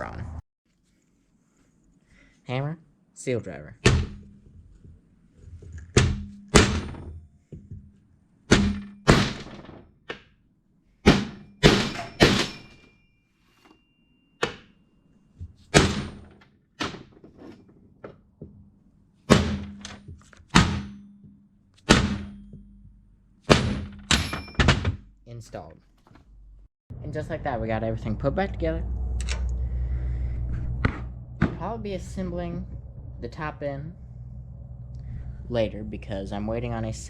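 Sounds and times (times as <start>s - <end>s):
hammer striking metal: 11.1s - 14.8s, 19.3s - 24.8s.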